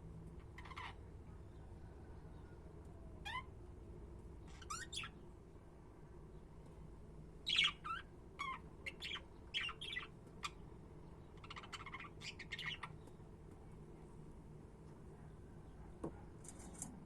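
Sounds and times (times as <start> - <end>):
faint background hum: 0.0 - 17.0
budgerigars chirping: 4.6 - 5.2, 7.5 - 10.6, 11.4 - 12.9.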